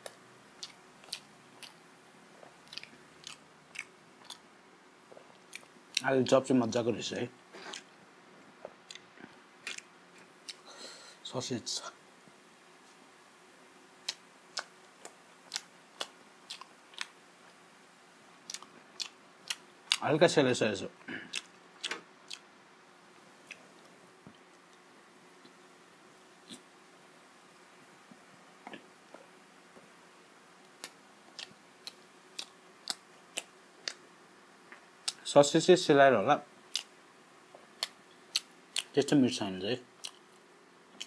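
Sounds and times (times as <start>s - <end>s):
wet chewing clicks: 0.0s - 1.8s, 2.4s - 4.5s, 8.6s - 10.6s, 14.0s - 17.6s, 18.4s - 20.0s, 21.3s - 22.5s, 30.6s - 34.0s, 34.7s - 35.2s, 36.7s - 37.0s, 37.6s - 39.0s, 40.0s - 41.0s.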